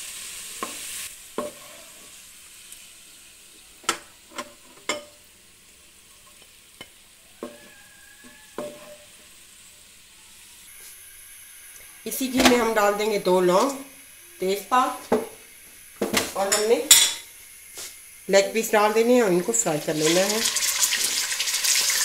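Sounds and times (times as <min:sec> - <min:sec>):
onions sizzling in a wok: 0:00.0 - 0:22.0
wooden spoon knocking on pan and bowl: 0:07.4 - 0:09.0, 0:15.1 - 0:15.4.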